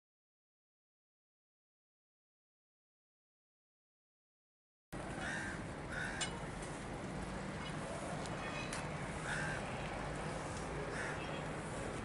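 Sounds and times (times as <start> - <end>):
bird cawing: 5.2 - 6.4, 8.5 - 9.8, 10.9 - 11.5.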